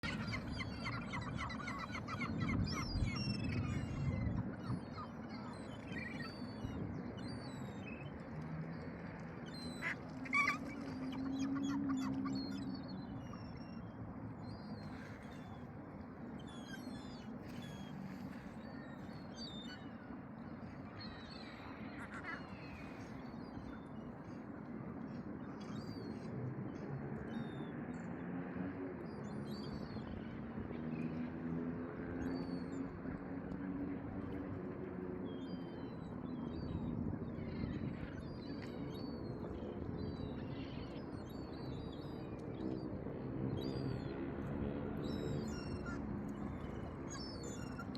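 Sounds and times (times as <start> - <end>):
many birds calling: 0.0 - 8.4, 9.4 - 13.9.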